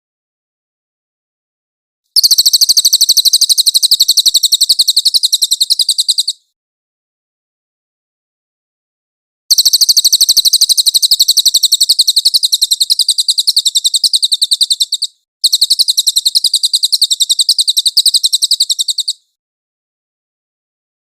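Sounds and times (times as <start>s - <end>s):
songbird high-pitched trills: 2.2s - 6.4s, 9.5s - 19.3s.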